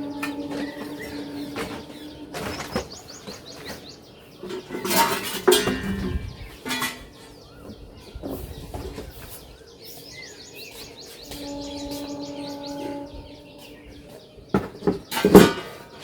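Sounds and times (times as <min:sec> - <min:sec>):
hard objects knocking and clattering: 0:00.0 - 0:07.2
small birds chirping: 0:00.0 - 0:16.0.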